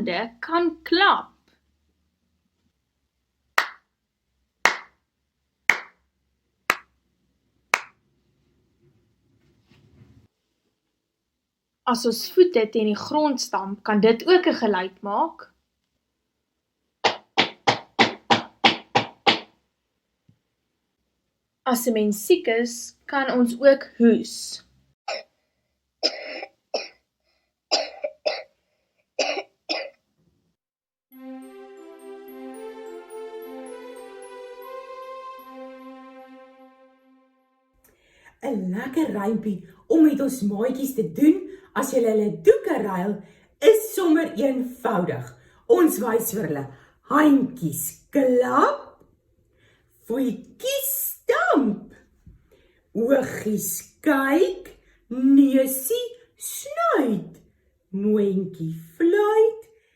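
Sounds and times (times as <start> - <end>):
hand claps: 3.6 - 3.9, 4.6 - 5.0, 5.7 - 6.0, 6.7 - 7.0, 7.7 - 8.0, 17.0 - 19.5
person coughing: 26.0 - 27.0, 27.7 - 28.5, 29.2 - 30.0.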